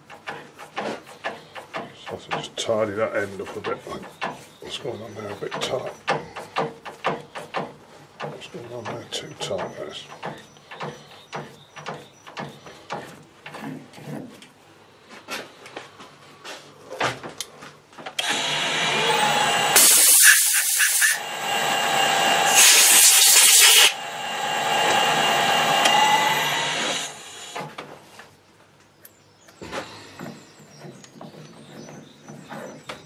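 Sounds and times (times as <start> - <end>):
power tool running: 18.2 - 27.8
loud hissing: 18.9 - 27.7.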